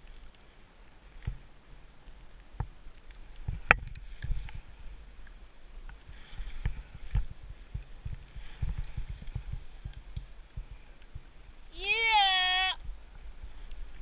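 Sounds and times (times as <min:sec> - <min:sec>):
wind rumble on microphone: 0:02.6 - 0:11.8, 0:12.5 - 0:14.0
skis sliding through powder snow: 0:06.5 - 0:11.5.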